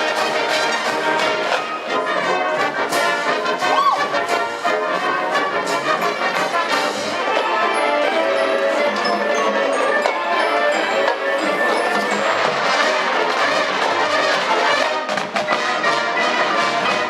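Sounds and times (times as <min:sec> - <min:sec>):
marching band brass playing: 0:00.0 - 0:17.0.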